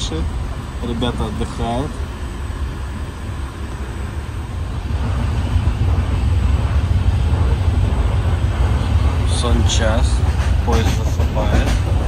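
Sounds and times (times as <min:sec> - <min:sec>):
moving train rumble and hiss: 0:00.0 - 0:12.0.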